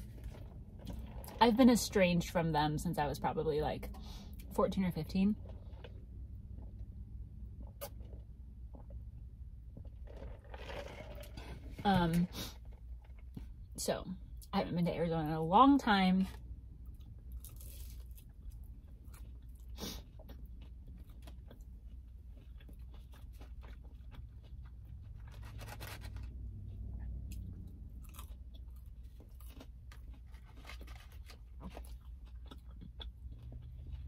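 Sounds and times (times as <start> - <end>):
chewing with soft crunches: 5.3 - 11.8, 16.3 - 34.0.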